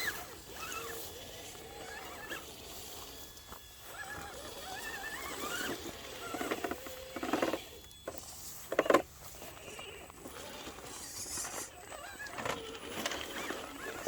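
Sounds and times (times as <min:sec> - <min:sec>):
electric motors whining: 0:00.0 - 0:14.0.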